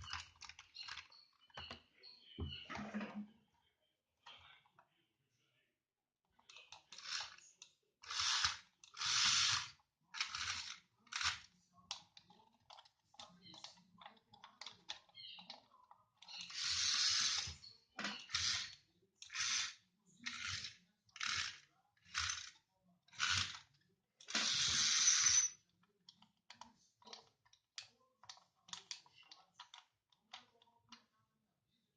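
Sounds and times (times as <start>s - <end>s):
toy gear mechanism whirring: 0.0s - 1.6s, 6.4s - 25.6s.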